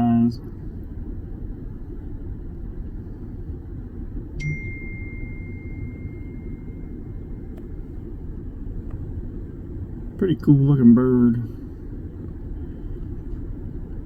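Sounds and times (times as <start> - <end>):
steady low rumble: 0.0 - 14.0
clear ringing tone: 4.4 - 7.6.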